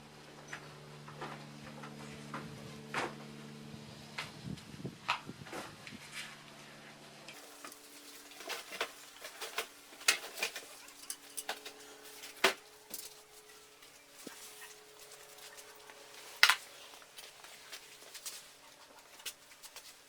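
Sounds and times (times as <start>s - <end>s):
hand tools clinking on metal: 7.4s - 20.0s.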